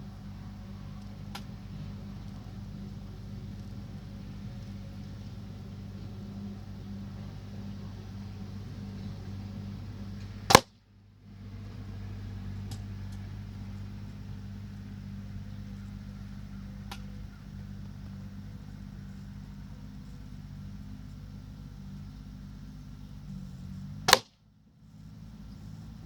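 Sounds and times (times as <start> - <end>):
faint clicks: 0.0 - 10.7, 11.7 - 26.0
steady low hum: 0.0 - 26.0
air rifle shot: 10.5 - 10.7, 24.1 - 24.3.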